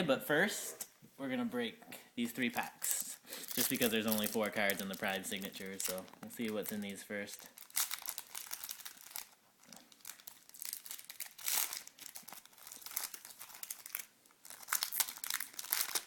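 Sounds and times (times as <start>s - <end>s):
card pack wrapper tearing: 3.4s - 16.0s.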